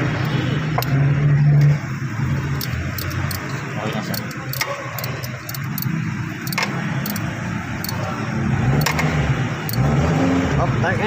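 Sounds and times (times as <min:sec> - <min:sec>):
car engine running: 0:01.7 - 0:09.9
sharp clicks: 0:02.6 - 0:08.0.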